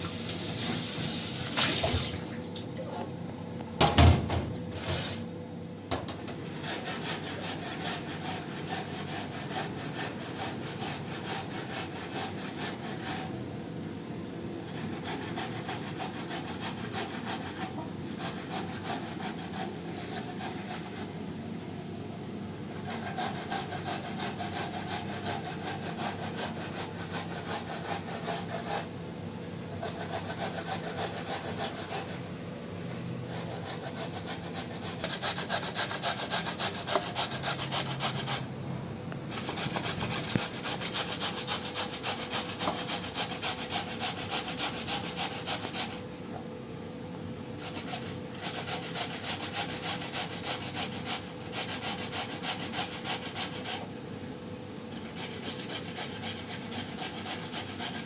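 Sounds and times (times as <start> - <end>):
fast rubbing or scraping strokes: 29.8 - 38.5, 39.3 - 46.0.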